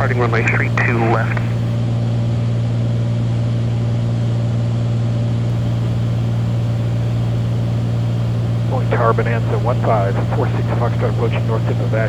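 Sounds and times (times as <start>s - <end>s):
propeller plane cabin drone: 0.0s - 1.8s, 5.5s - 12.0s.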